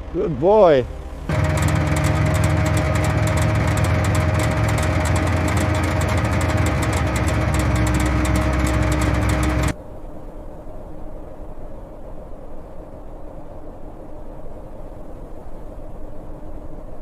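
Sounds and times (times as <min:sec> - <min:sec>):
vehicle engine idling: 0:00.0 - 0:09.8.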